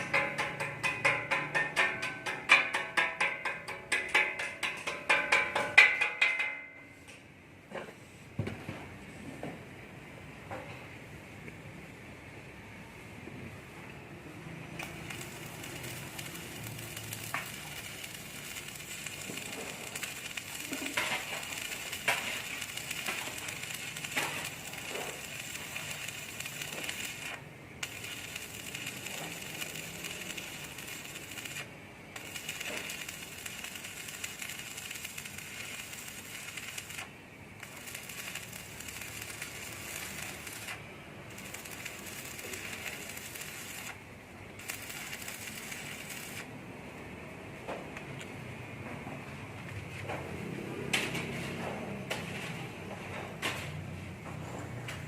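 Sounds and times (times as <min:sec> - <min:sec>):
arc welding crackling sizzle: 0:14.2 - 0:47.1.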